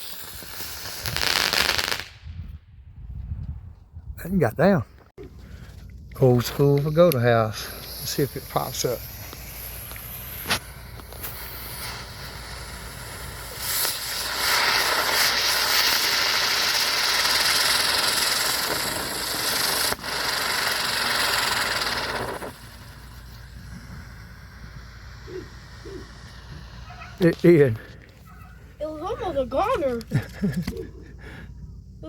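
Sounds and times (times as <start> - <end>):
firework hissing: 0.0 - 2.2, 6.5 - 30.1.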